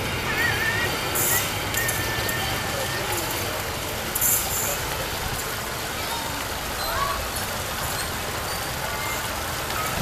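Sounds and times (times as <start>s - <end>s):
train wheels rumbling on track: 0.0s - 10.0s
faint wheel squeals: 6.8s - 10.0s.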